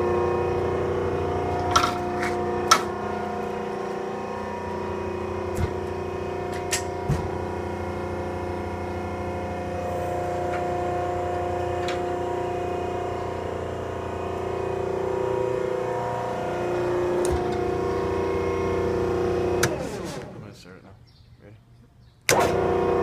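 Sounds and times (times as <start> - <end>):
baler droning and whining: 0.0 - 20.9, 22.3 - 23.0.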